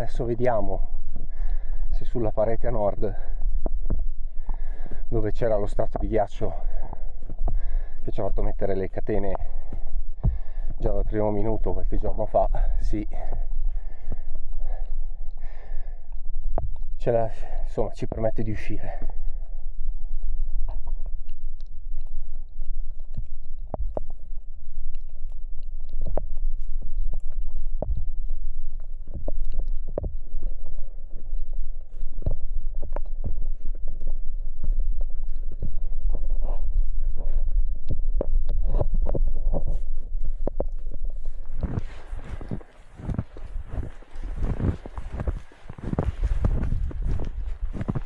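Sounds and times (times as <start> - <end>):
snow chains knocking and clunking: 41.6 - 48.0.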